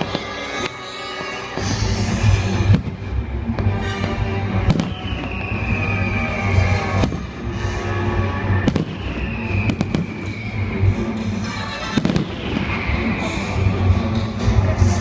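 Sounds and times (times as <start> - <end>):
fireworks bangs: 0.0 - 14.9
music playing: 0.0 - 15.0.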